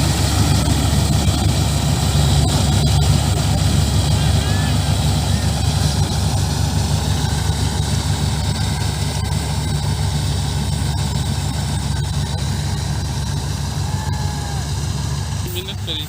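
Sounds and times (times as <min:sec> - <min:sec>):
diesel engine low rumble: 0:00.0 - 0:16.0.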